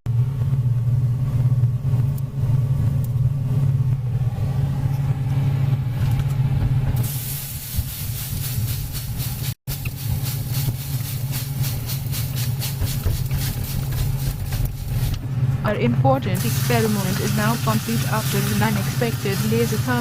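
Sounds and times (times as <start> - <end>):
microwave oven humming: 0.1 - 8.7, 9.7 - 20.0
loud crackling hiss: 7.0 - 12.6.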